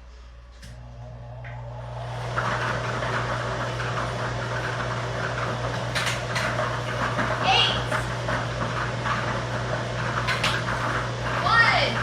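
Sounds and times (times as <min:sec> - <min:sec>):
blower motor hum: 0:00.0 - 0:12.0.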